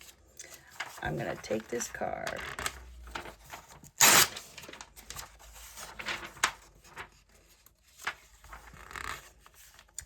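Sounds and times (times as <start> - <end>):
paper rustling: 0.0 - 10.0
magazine page ripping: 0.8 - 7.2.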